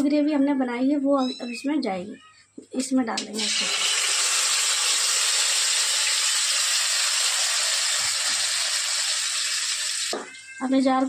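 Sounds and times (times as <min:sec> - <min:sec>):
paste sizzling in hot oil: 0:03.4 - 0:10.2.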